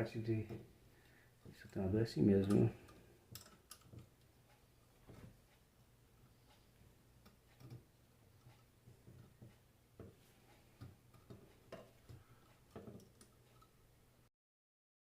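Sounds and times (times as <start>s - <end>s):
faint steady hum: 0.0s - 14.3s
clicks of metal parts and tools: 2.4s - 4.0s.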